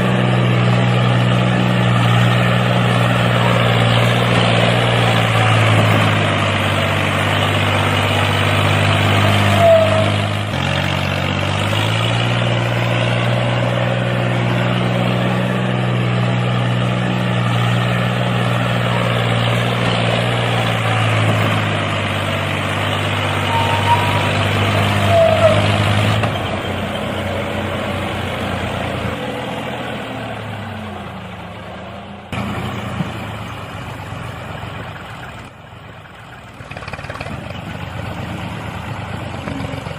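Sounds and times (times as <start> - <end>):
small tractor engine running: 0.0 - 39.9
short squeaks: 23.3 - 27.2.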